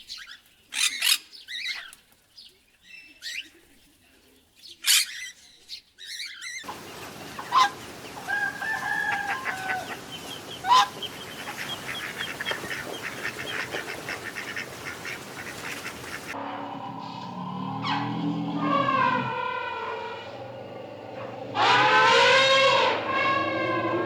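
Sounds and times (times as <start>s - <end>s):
chickens calling: 6.1s - 24.0s.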